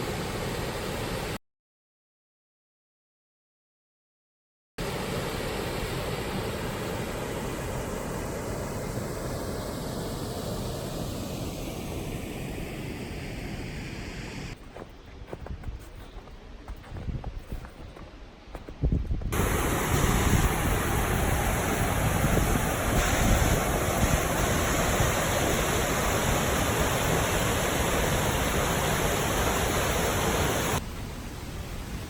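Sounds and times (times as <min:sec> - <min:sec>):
faint low wind rumble: 0:07.0 - 0:32.0
waterfall rushing: 0:19.4 - 0:32.0.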